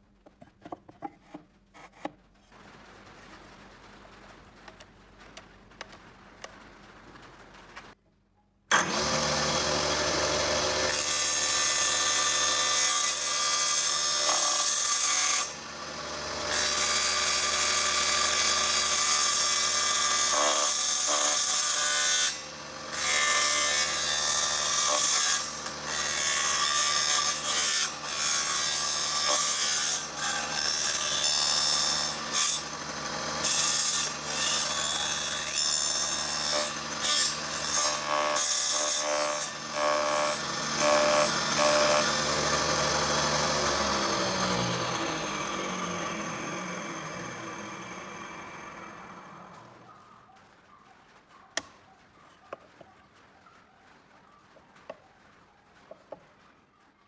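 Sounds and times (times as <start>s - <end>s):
wood rasping: 0.3s - 2.2s
power tool motor hum: 8.7s - 13.1s, 39.6s - 49.7s.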